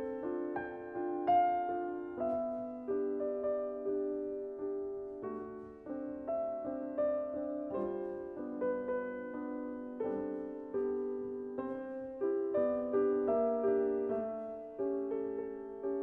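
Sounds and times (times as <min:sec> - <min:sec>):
gentle solo piano music: 0:00.0 - 0:16.0.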